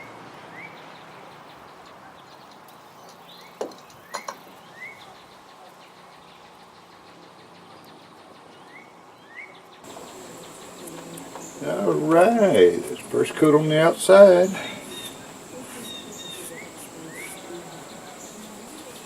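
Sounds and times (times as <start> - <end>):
background hiss: 0.0 - 19.0
rising bird chirps: 8.7 - 19.0.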